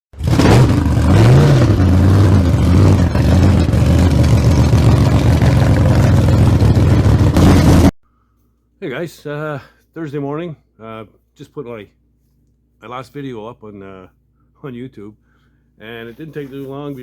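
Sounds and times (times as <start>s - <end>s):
engine running loudly: 0.1s - 7.9s.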